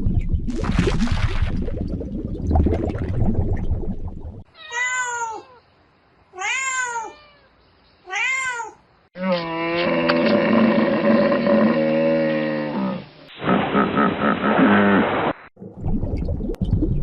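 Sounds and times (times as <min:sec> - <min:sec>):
cat meowing: 0:04.5 - 0:05.6, 0:06.4 - 0:07.5, 0:08.1 - 0:08.8
cow mooing: 0:09.2 - 0:13.0.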